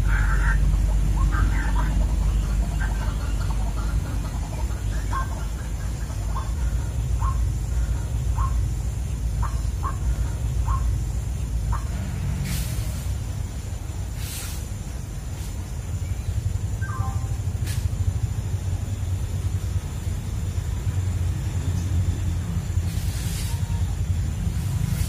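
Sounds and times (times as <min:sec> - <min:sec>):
short bird calls: 0:00.0 - 0:13.1, 0:22.8 - 0:24.1
low steady rumble: 0:00.0 - 0:25.0
brief hiss: 0:12.4 - 0:13.2, 0:14.2 - 0:14.8, 0:17.6 - 0:18.0, 0:22.8 - 0:23.8.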